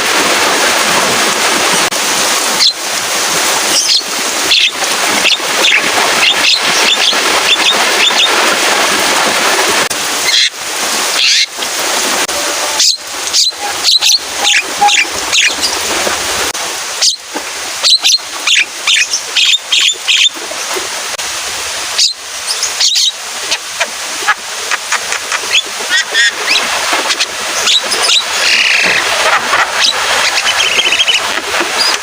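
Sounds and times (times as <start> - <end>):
rain hissing: 0.0 - 32.0
myna bird singing harsh notes: 12.8 - 15.8.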